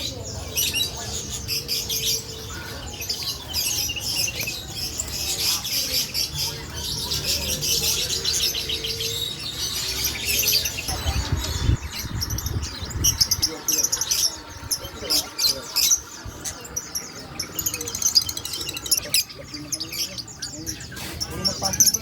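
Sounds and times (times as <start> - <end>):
songbirds chirping and twittering: 0.0 - 22.0
low rumble: 10.9 - 15.3.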